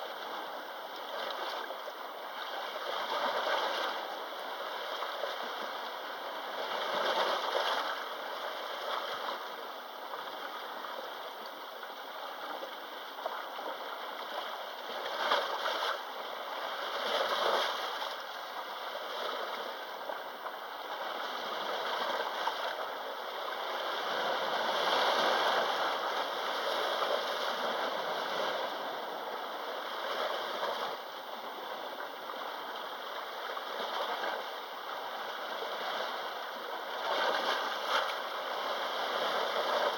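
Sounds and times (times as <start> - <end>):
sea waves washing in: 21.3 - 39.9.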